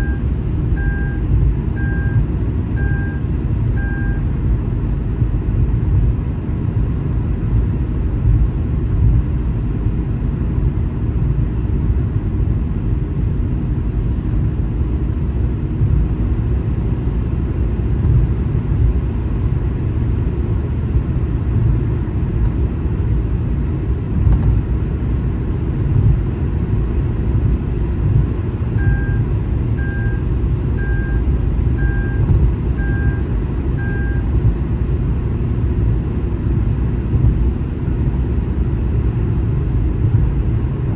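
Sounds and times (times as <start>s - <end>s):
short beeps: 0.0s - 1.2s, 1.8s - 4.3s, 28.7s - 34.3s
car rumbling on highway: 0.0s - 40.9s.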